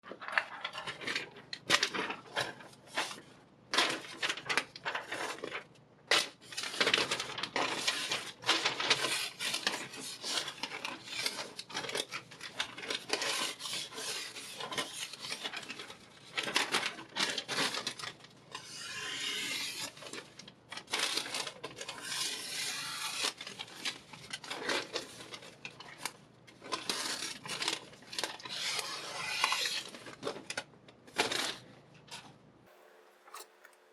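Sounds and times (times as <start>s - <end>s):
knife blade scraping sharpening stone: 33.3s - 33.9s.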